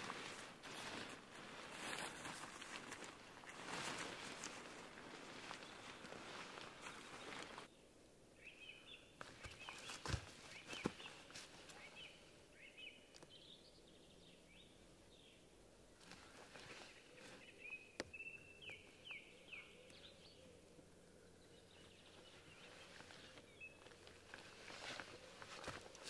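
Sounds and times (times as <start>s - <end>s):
soft rustling: 0.0s - 7.7s, 16.0s - 17.7s, 22.0s - 26.0s
bird chirping: 5.4s - 15.5s, 16.5s - 25.6s.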